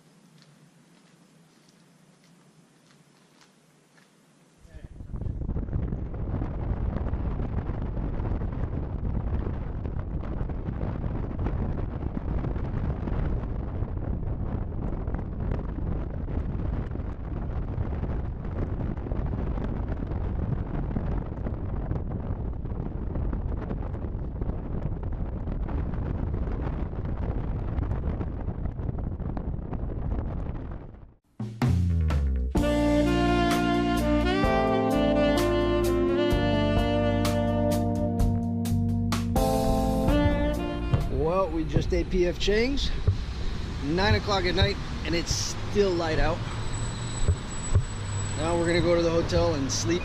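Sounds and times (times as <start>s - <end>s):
wind buffeting microphone: 4.7s - 31.2s, 39.4s - 50.0s.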